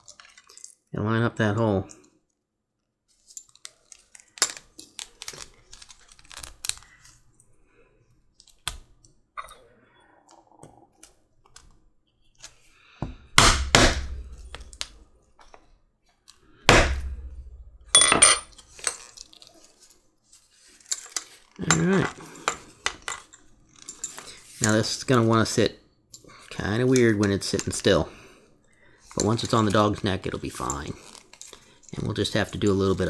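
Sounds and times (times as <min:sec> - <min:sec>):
hammer strikes on metal: 0:13.3 - 0:14.7, 0:16.7 - 0:18.4
clinks of rivet parts: 0:18.0 - 0:19.3, 0:20.8 - 0:24.8.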